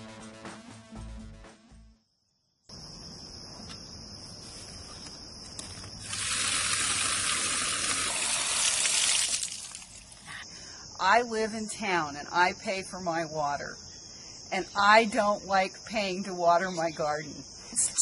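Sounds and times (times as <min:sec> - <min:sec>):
high insect trill: 0:02.1 - 0:18.0
rushing water hiss: 0:06.0 - 0:10.2.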